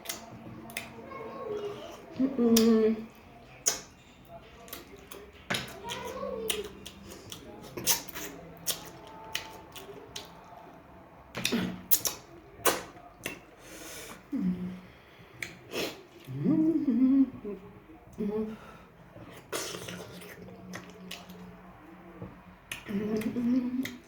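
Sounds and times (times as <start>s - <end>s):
chewing and mouth clicks: 0.0s - 1.0s, 1.8s - 10.8s, 11.4s - 14.2s, 19.2s - 21.6s, 22.7s - 24.0s.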